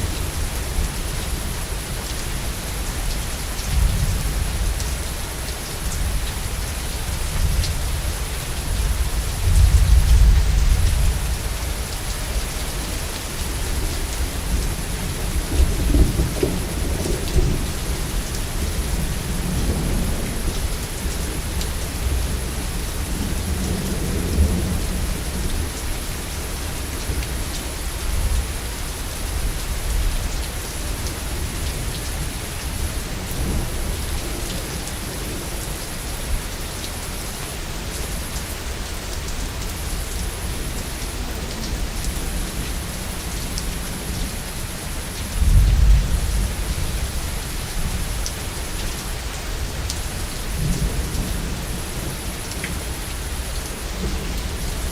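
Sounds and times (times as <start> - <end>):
heavy rain: 0.0 - 54.9.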